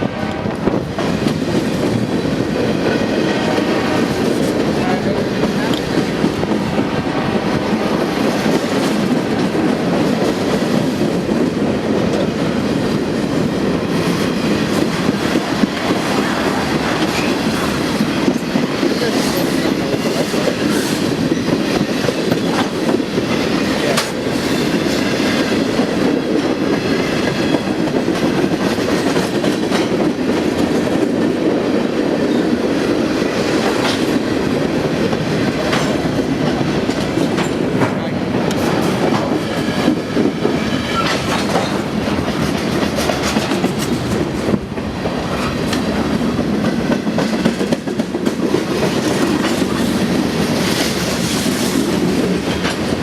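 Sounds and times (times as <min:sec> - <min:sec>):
steel wheels rumbling on rail: 0:00.0 - 0:53.0
wheels clicking over rail joints: 0:33.2 - 0:53.0.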